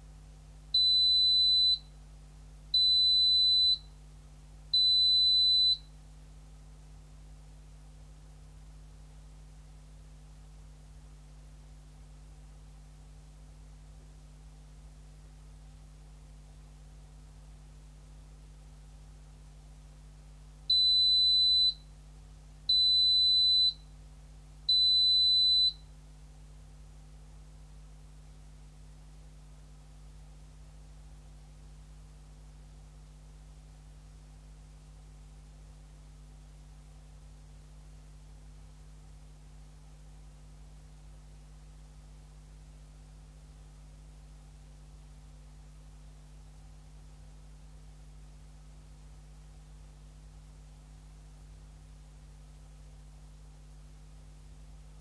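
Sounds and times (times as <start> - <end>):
washing machine buzzer beeps: 0.8 - 1.9, 2.8 - 3.9, 4.8 - 5.9, 20.7 - 21.8, 22.7 - 23.8, 24.7 - 25.8.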